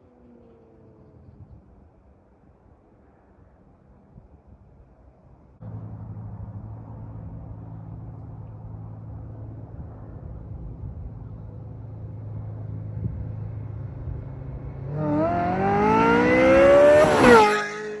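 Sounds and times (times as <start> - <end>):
car engine accelerating: 5.6 - 18.0.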